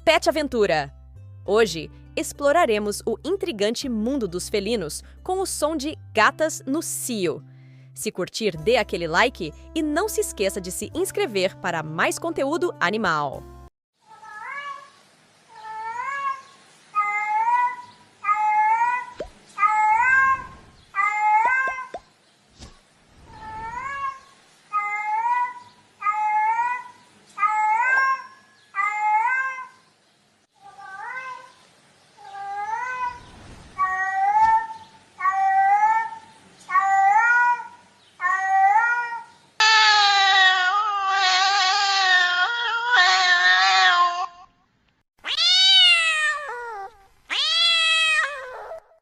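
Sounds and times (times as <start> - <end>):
cat meowing loudly: 15.6 - 21.9, 23.3 - 29.8, 32.2 - 44.4, 45.2 - 49.0.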